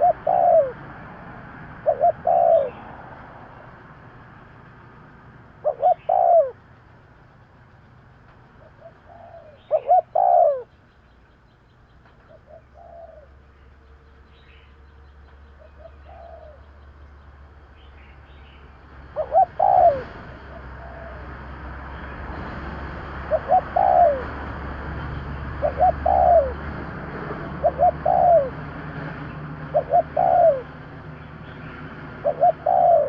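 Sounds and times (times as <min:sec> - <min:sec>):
dove cooing: 0:00.0 - 0:00.9, 0:01.8 - 0:03.3, 0:05.5 - 0:06.7, 0:08.5 - 0:10.7, 0:12.2 - 0:13.4, 0:15.6 - 0:16.8, 0:19.1 - 0:21.4, 0:23.2 - 0:24.5, 0:25.5 - 0:28.6, 0:29.6 - 0:30.8, 0:32.2 - 0:33.0
small birds chirping: 0:00.0 - 0:01.2, 0:01.8 - 0:03.9, 0:04.8 - 0:21.2, 0:21.8 - 0:26.6, 0:29.2 - 0:33.0.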